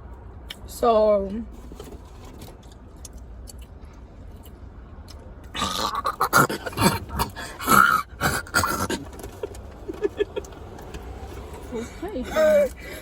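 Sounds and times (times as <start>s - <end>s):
person coughing and gasping: 5.6s - 9.1s.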